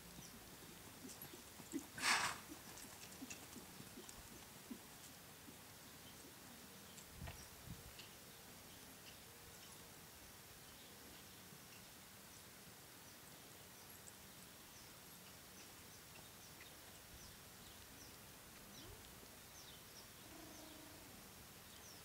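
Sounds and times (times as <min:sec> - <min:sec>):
faint outdoor hiss: 0:00.0 - 0:22.0
small birds chirping: 0:00.0 - 0:22.0.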